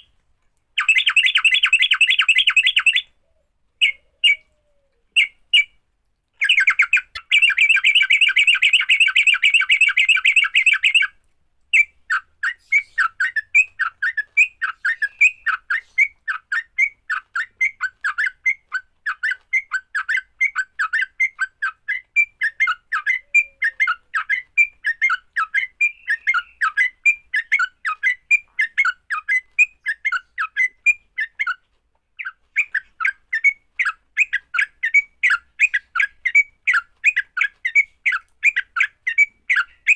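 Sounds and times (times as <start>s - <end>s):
bird rapid chattering: 0.8s - 3.1s, 6.4s - 11.1s
bird sharp chirps: 0.8s - 3.2s, 6.4s - 11.1s, 19.1s - 31.6s.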